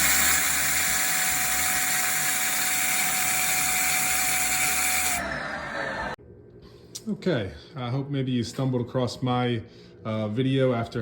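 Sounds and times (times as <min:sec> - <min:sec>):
vacuum cleaner running: 0:00.0 - 0:06.2
vacuum motor winding down: 0:00.0 - 0:06.2.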